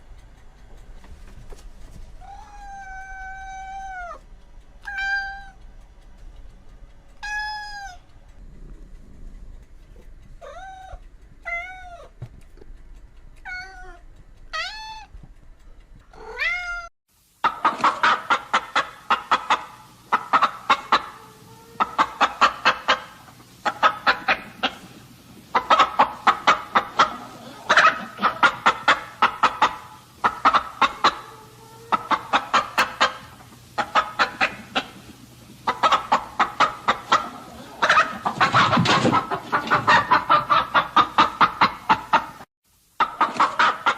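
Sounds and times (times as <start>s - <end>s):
chickens clucking: 0.0s - 4.2s, 17.4s - 43.9s
cat meowing: 2.2s - 4.2s, 4.8s - 5.6s, 7.2s - 8.0s, 10.4s - 12.2s, 13.4s - 15.1s, 16.1s - 16.9s.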